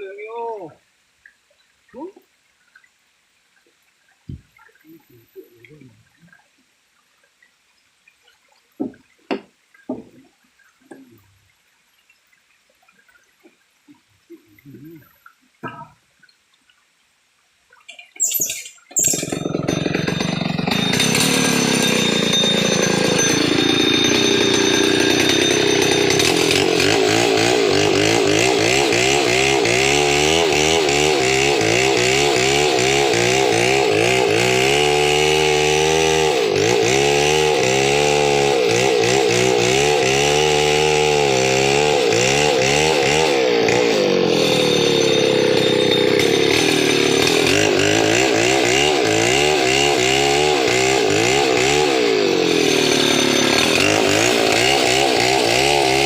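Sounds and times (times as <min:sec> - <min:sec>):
chainsaw engine running: 0:19.0 - 0:56.0.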